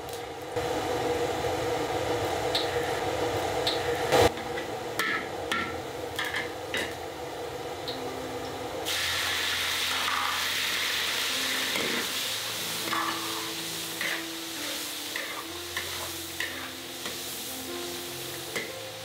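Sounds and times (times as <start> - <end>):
food sizzling in hot oil: 8.8 - 19.0
metal spatula scraping wok: 12.8 - 17.2.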